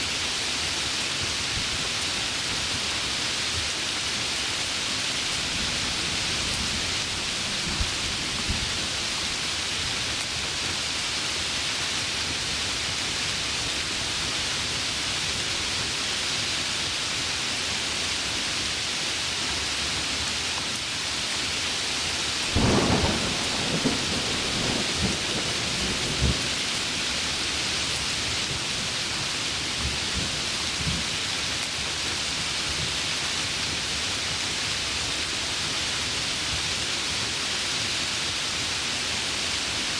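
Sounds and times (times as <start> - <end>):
heavy rain: 0.0 - 39.9
crackling thunder rumble: 22.5 - 27.3.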